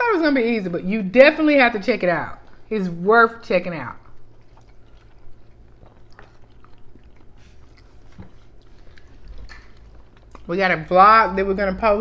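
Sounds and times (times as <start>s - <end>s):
person chewing egg: 3.9s - 10.5s.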